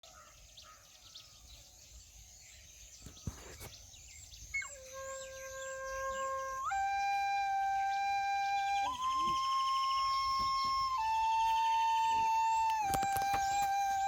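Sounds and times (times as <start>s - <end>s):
birds chirping: 0.0s - 14.0s
flute playing long notes: 4.6s - 14.0s.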